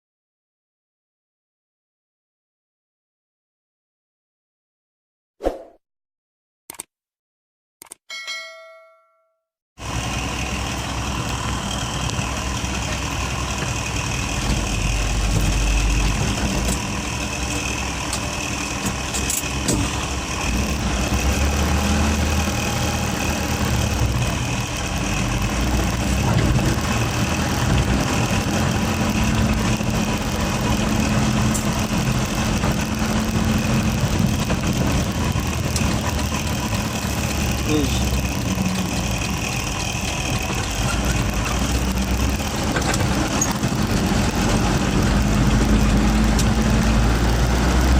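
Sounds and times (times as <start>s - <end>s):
truck engine running: 9.8s - 47.9s.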